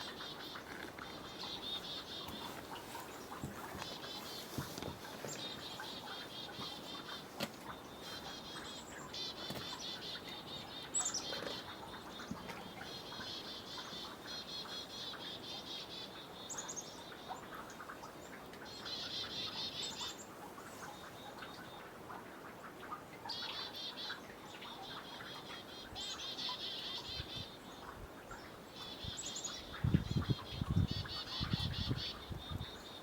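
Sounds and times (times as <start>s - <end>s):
snowmelt dripping into water: 16.4s - 27.1s.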